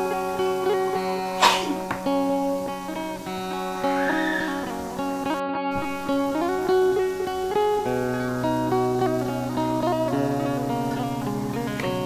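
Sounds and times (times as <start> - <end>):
plucked guitar music: 0.0 - 12.0
deep accompanying note: 5.8 - 8.4.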